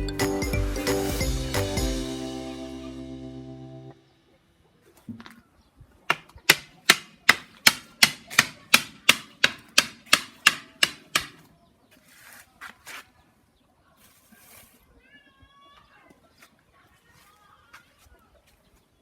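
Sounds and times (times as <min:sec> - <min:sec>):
faint scrapes: 0:11.9 - 0:13.2, 0:13.8 - 0:15.0.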